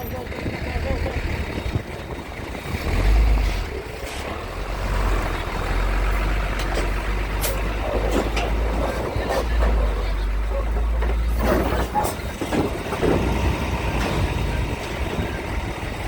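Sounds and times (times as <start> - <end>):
heavy diesel engine rumbling: 0.0 - 16.0.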